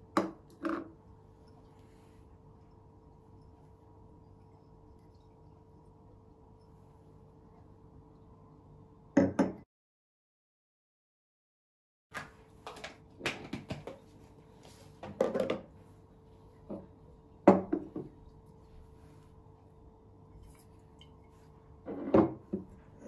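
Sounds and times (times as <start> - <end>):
glassware knocking on wooden table: 9.2 - 9.6, 17.5 - 18.1.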